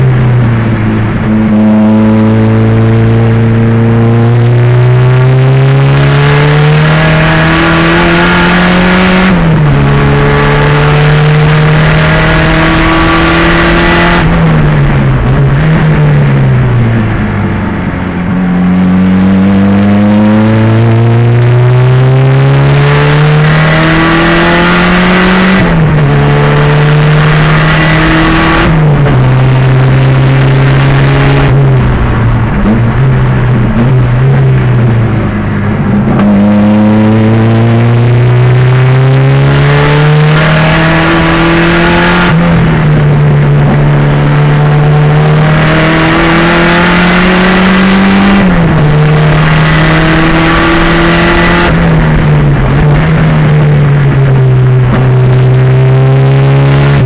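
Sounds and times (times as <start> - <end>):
racing car engine revving: 0.0 - 57.0.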